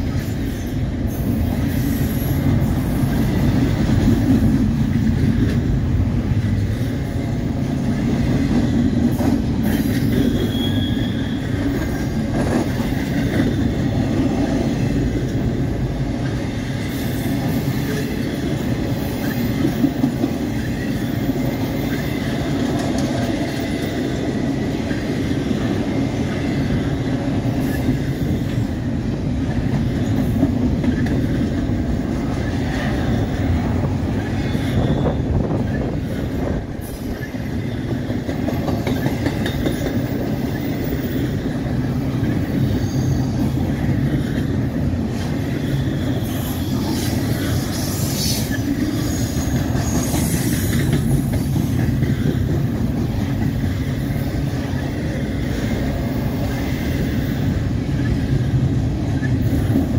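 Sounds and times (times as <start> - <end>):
steel wheels rumbling on rail: 0.0 - 59.9
high wheel squeals: 9.8 - 11.8, 45.4 - 50.8.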